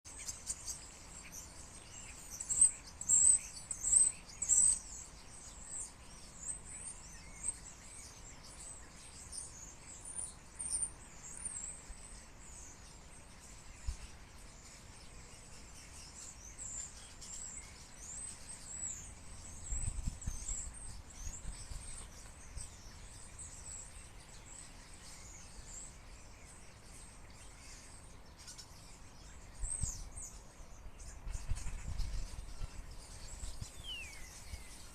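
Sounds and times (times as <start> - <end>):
flock of birds chirping: 0.0 - 34.9.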